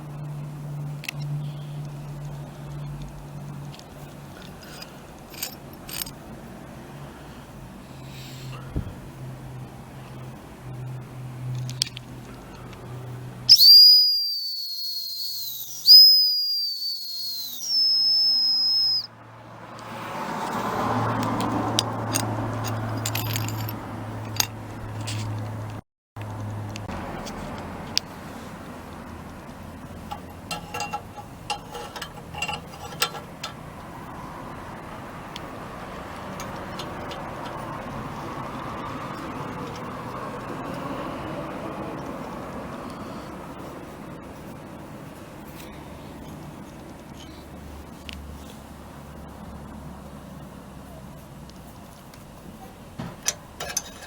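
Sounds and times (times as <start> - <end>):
sharp clicks and rattles: 3.6 - 6.2, 29.0 - 34.0, 36.2 - 38.0
exhaust turbo whistle: 13.5 - 19.1.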